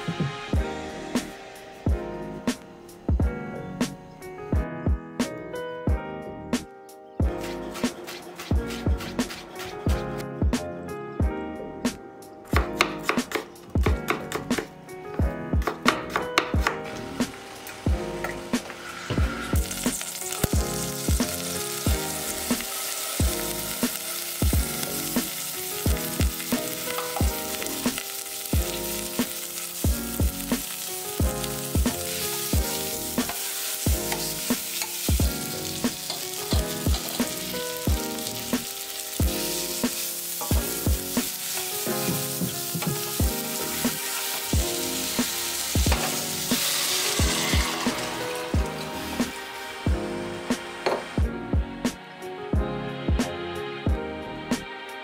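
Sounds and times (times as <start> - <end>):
music with steady beat: 0.0 - 4.0, 4.6 - 16.8, 17.9 - 28.0, 28.6 - 55.0
food sizzling in oil: 16.8 - 49.9.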